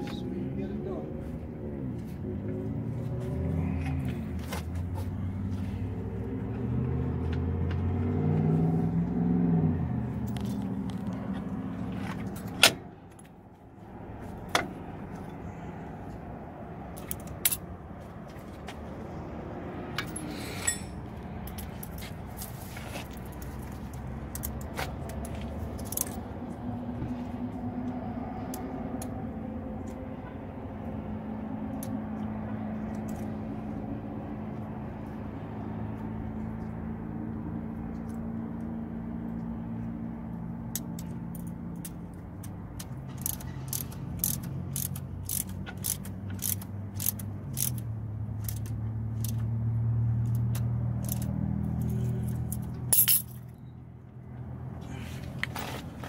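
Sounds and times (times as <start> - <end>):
metallic clinks of tools: 20.0 - 22.0, 51.1 - 53.6.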